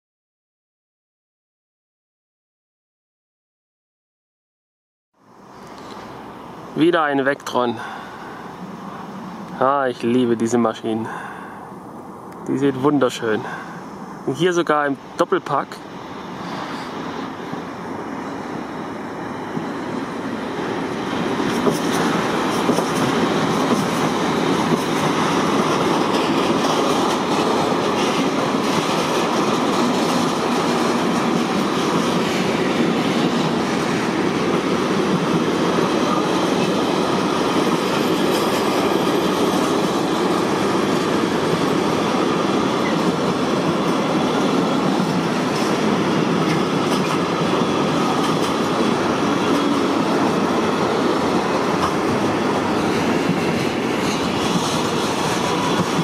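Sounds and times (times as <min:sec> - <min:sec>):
freight train passing: 0:05.2 - 0:56.0
wheels clicking on rails: 0:20.6 - 0:56.0.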